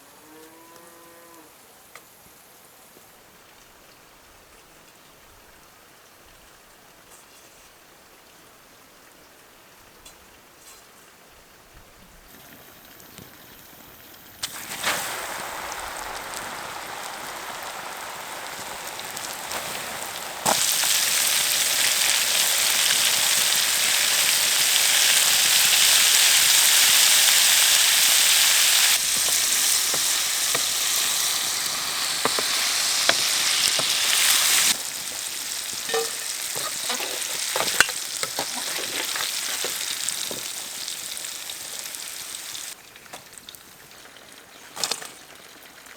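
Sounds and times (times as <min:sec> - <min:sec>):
food frying in hot oil: 0:12.3 - 0:45.9
utensil tapping in pan: 0:29.0 - 0:40.7.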